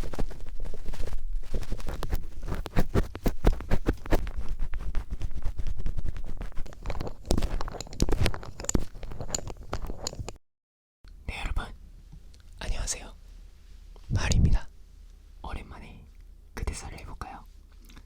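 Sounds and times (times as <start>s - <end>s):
screwdriver scratching near microphone: 0.0s - 10.4s.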